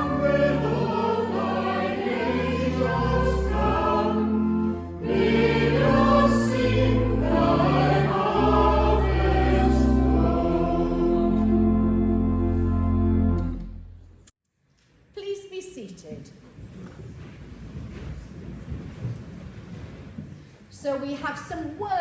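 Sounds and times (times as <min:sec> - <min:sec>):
congregation singing a hymn: 0:00.0 - 0:13.4
pipe organ: 0:00.0 - 0:14.0.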